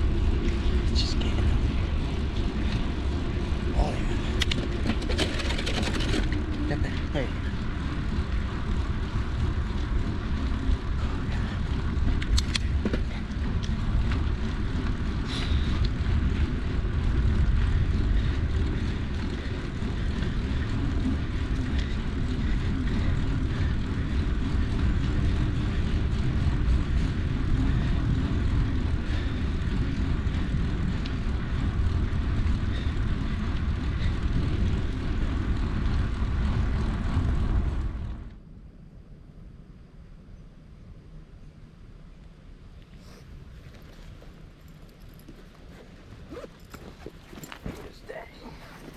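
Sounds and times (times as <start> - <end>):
bike tyres rolling on dirt: 0.0 - 48.9
wind rumble on microphone: 0.0 - 48.9
sharp ticks: 12.0 - 12.8.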